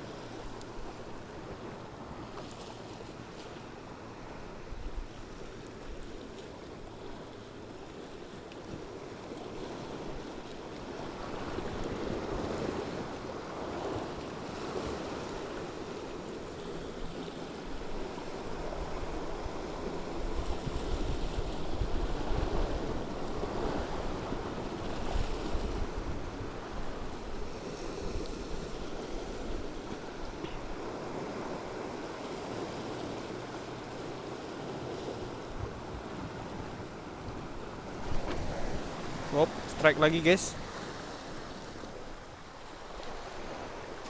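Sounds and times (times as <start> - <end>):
sea waves washing on shore: 0.0 - 44.0
wind buffeting microphone: 17.8 - 33.5.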